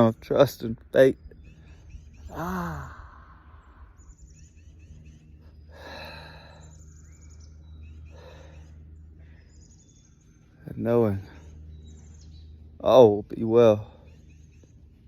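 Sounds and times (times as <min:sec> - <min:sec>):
small birds chirping faintly: 0:00.0 - 0:15.0
steady low hum: 0:00.0 - 0:15.0
man sighing: 0:02.3 - 0:03.6
man drawing a breath: 0:05.6 - 0:06.9.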